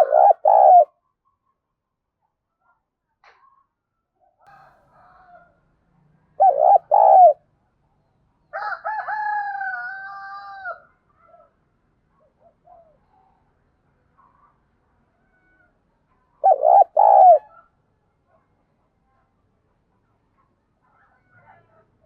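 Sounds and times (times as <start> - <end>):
dove cooing: 0.0 - 0.9, 6.4 - 7.4, 16.4 - 17.5.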